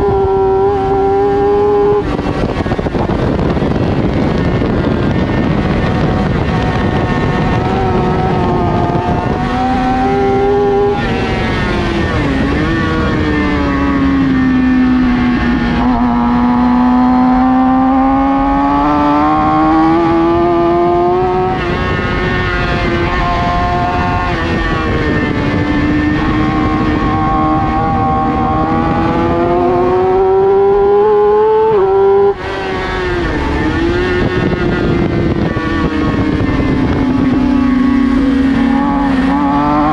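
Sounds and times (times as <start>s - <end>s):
gear changes: 0.0s - 39.9s
motorcycle engine revving: 0.0s - 39.9s.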